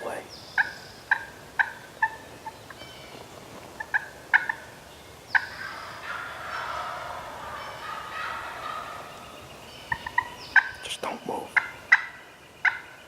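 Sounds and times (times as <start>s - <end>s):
turkey rattling gobble: 0.6s - 2.8s, 3.8s - 4.7s, 5.3s - 10.8s, 11.5s - 12.9s.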